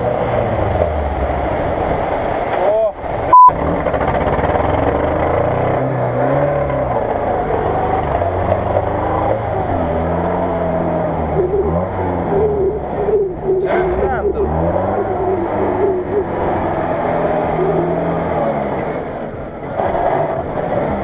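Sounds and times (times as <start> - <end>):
off-road vehicle engine revving: 0.0 - 21.0
tyres churning through mud: 0.0 - 21.0
censor bleep: 3.3 - 3.5.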